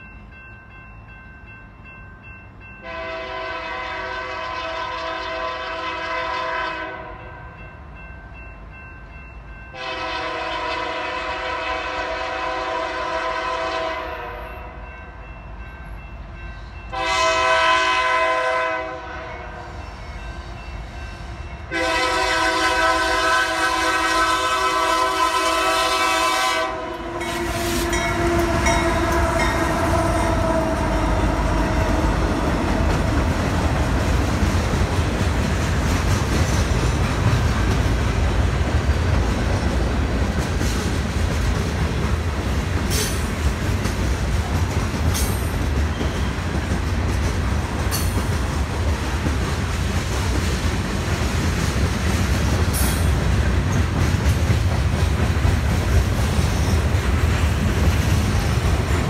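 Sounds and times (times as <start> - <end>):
locomotive horn: 2.8 - 7.4, 9.7 - 14.8, 16.9 - 19.7, 21.7 - 33.0
freight cars rumbling on rails: 9.8 - 59.0.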